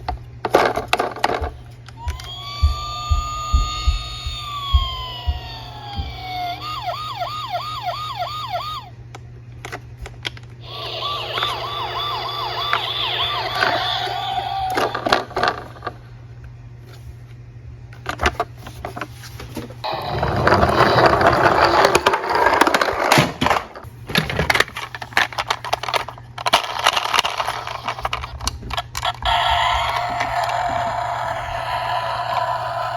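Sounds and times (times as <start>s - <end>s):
electronic police siren: 2.0s - 8.9s, 10.6s - 15.4s, 29.2s - 32.9s
low hum: 10.6s - 17.8s.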